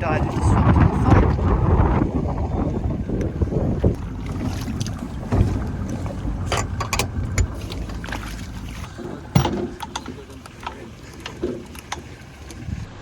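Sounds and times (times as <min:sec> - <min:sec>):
water around small boat: 0:00.0 - 0:13.0
wind on microphone: 0:00.0 - 0:13.0
sharp knocks and clunks: 0:03.8 - 0:12.3.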